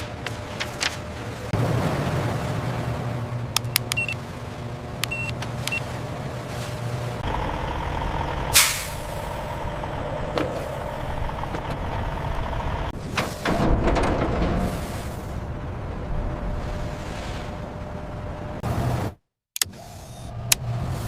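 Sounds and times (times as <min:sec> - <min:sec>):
machinery hum: 0:00.0 - 0:18.6
sharp clicks: 0:03.6 - 0:04.2.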